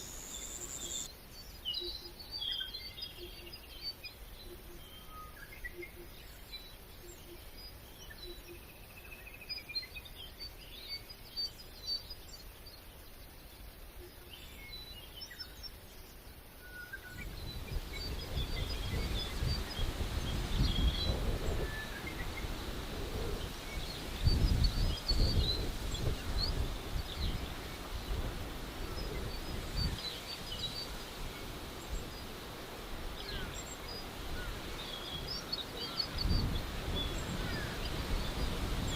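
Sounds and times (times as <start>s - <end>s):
small birds chirping: 0.0s - 38.9s
wind on microphone: 17.1s - 38.9s.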